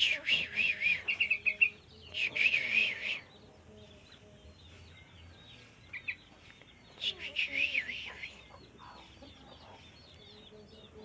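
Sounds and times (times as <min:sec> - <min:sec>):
bulbul warbling song: 0:00.0 - 0:11.0
faint bird chirps: 0:00.0 - 0:11.0.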